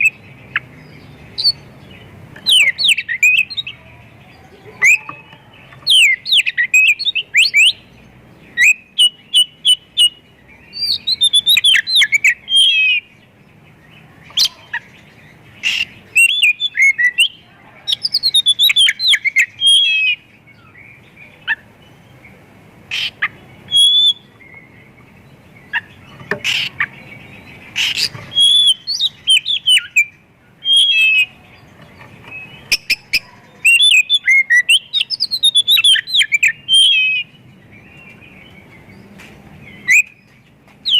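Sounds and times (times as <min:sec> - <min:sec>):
bird singing whistles and chirps: 0:00.0 - 0:01.7, 0:02.4 - 0:03.8, 0:04.8 - 0:13.2, 0:15.6 - 0:21.0, 0:22.9 - 0:25.0, 0:25.6 - 0:39.1, 0:39.7 - 0:40.9.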